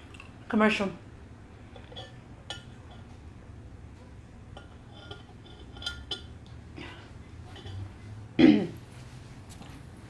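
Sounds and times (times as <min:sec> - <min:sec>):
low background hum: 0:00.0 - 0:10.0
tableware clinking: 0:01.8 - 0:03.1, 0:04.5 - 0:06.4, 0:07.5 - 0:07.9.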